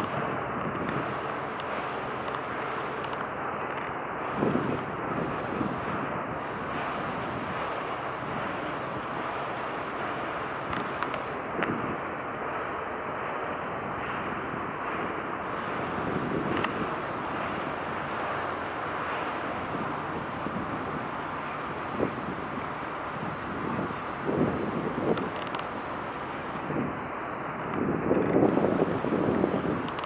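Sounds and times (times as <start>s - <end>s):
faint clicks: 0.0s - 4.9s, 10.5s - 15.3s, 25.1s - 28.4s, 29.8s - 30.0s
wind-like hiss: 0.0s - 30.0s.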